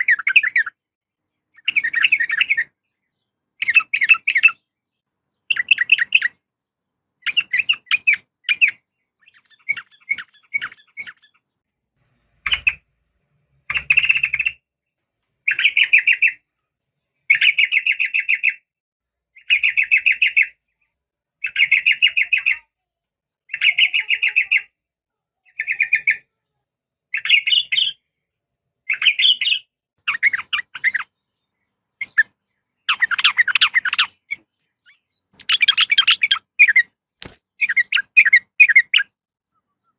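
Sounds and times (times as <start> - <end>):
bulbul chattering calls: 5.5 - 6.4, 7.2 - 11.4, 28.9 - 31.1, 32.0 - 36.9, 37.6 - 39.1.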